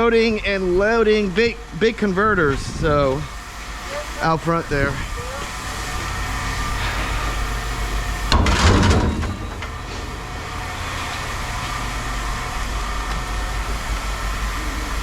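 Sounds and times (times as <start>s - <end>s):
engine humming: 0.0s - 15.0s
scrap metal clattering: 6.0s - 11.3s.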